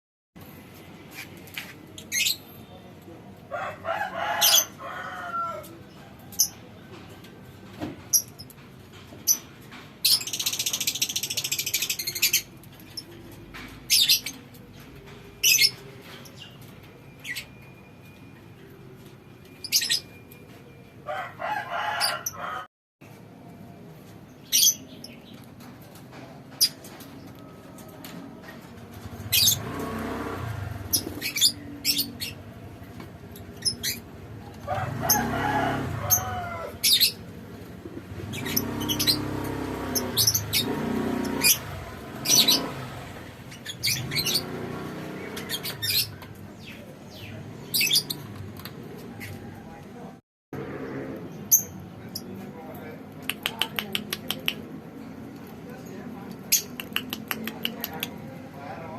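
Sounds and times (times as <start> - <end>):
birds chirping: 9.2 - 21.1, 28.4 - 49.8.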